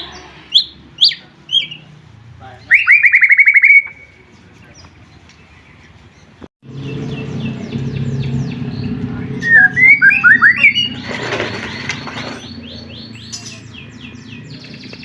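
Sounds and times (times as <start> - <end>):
bird chirps and rattling trill: 6.7 - 15.0.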